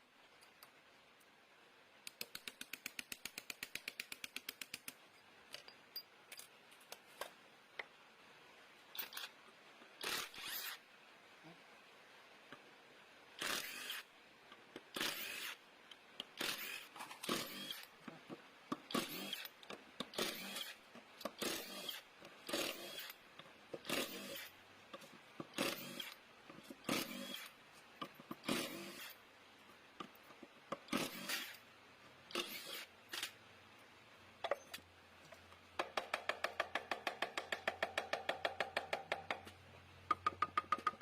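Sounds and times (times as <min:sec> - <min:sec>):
hand tools scraping and clicking metal: 0:02.0 - 0:07.9, 0:08.9 - 0:09.4, 0:13.4 - 0:31.7, 0:32.3 - 0:33.4.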